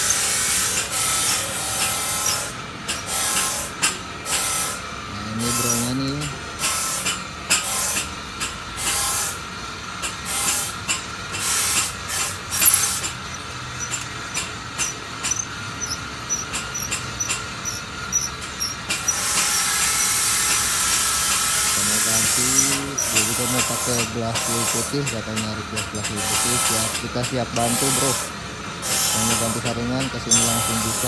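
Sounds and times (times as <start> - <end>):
small clicks: 12.6 - 20.3.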